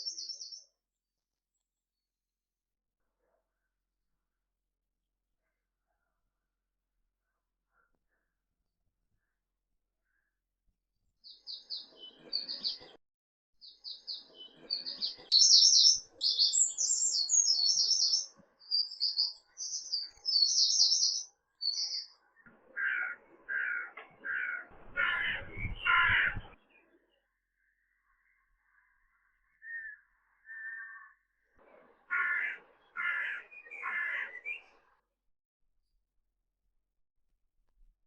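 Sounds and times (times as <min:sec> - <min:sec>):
songbirds chirping: 0:00.0 - 0:00.9, 0:11.2 - 0:13.0, 0:13.6 - 0:35.0
harsh bird calls: 0:13.6 - 0:27.0, 0:28.0 - 0:34.9.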